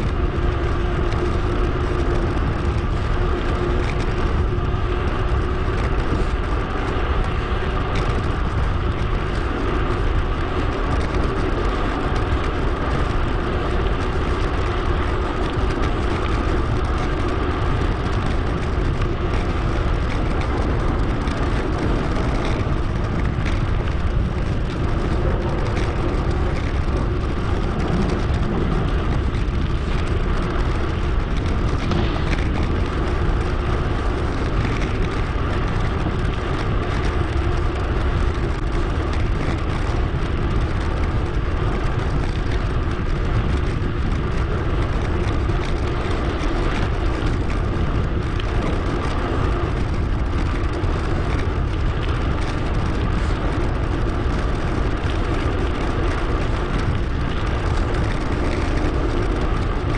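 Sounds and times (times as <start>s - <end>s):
bicycle tyre noise: 0.0s - 59.9s
wind rush: 0.0s - 59.9s.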